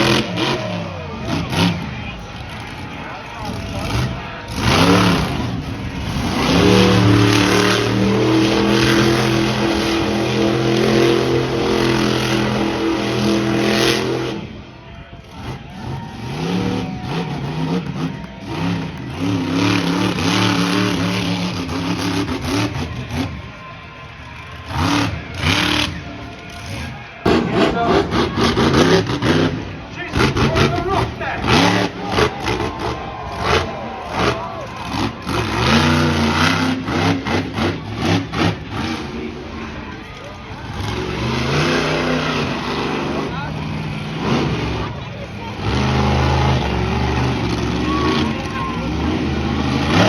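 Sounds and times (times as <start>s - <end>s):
monster truck engine revving: 0.0s - 50.0s.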